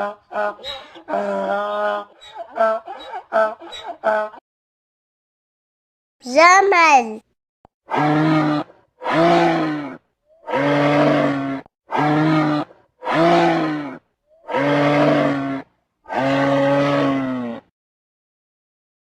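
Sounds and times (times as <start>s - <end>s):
camel calling: 7.9s - 17.6s.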